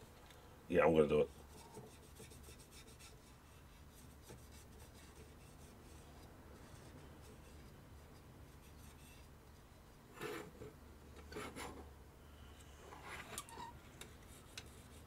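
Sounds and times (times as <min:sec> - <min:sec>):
low steady hum: 0:00.0 - 0:15.0
paint pen scratching on plastic: 0:01.3 - 0:07.6.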